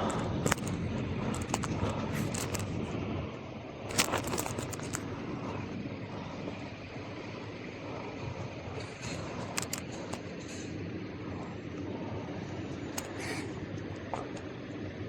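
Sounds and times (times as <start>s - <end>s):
bike rattling clicks: 0.0s - 3.0s, 3.8s - 5.6s, 8.7s - 10.8s, 12.7s - 14.6s.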